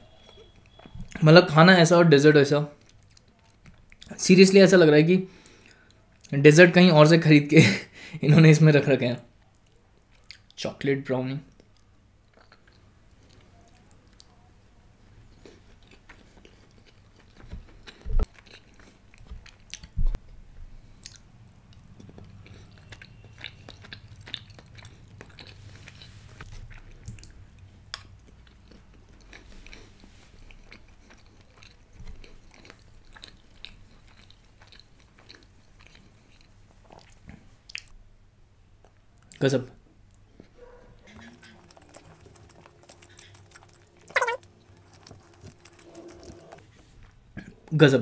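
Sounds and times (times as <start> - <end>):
person chewing: 2.8 - 4.2, 9.5 - 10.6, 11.5 - 14.3, 15.2 - 38.0, 40.1 - 47.7
wet mouth clicks: 41.1 - 45.7.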